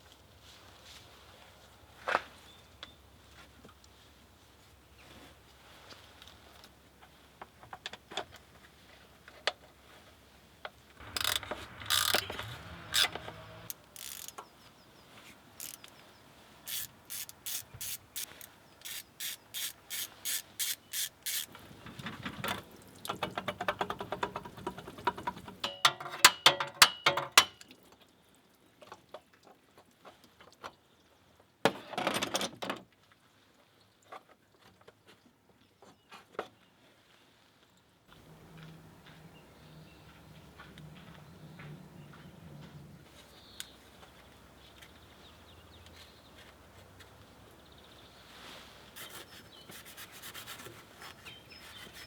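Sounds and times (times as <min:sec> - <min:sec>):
metal tools being handled: 0:11.0 - 0:14.4, 0:15.6 - 0:15.9, 0:16.7 - 0:21.5
ratchet wrench clicking: 0:11.0 - 0:14.4, 0:15.6 - 0:15.9, 0:16.7 - 0:21.5.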